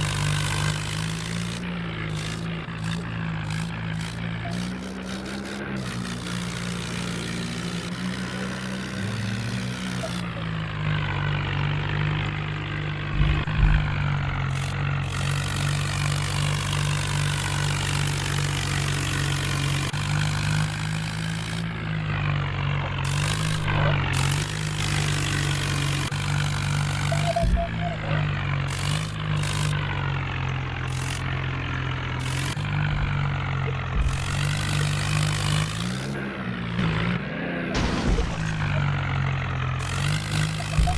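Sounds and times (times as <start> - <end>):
tractor diesel engine running: 0.0 - 40.9
low thumps: 13.1 - 14.8, 32.7 - 35.0, 37.8 - 39.0.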